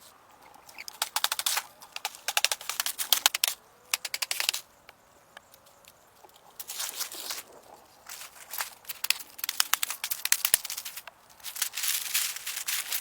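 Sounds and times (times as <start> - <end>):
sharp clicks and crackles: 0.6 - 4.7, 8.1 - 13.0.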